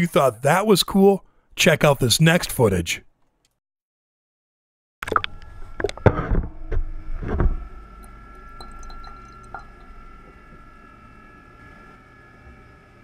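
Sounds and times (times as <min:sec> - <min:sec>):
faint steady hum: 0:05.2 - 0:13.0
thin steady tone: 0:07.8 - 0:11.0.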